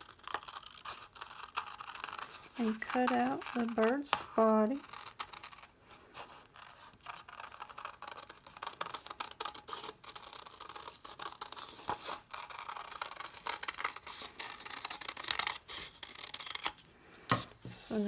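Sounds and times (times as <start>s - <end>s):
scissors cutting paper: 0.0s - 16.8s
paper rustling: 2.2s - 4.8s, 11.4s - 18.0s.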